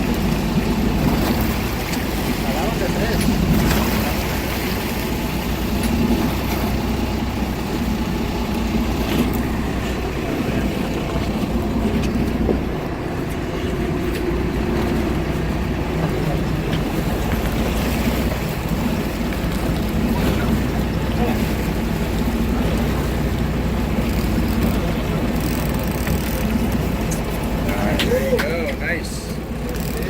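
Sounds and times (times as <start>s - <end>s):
boat engine running: 0.0s - 30.0s
water noise: 0.0s - 30.0s
wind: 0.0s - 30.0s.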